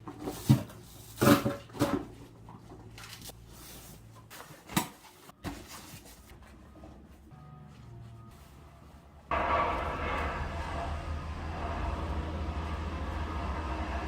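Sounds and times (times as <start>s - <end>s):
low steady hum: 6.2s - 14.0s.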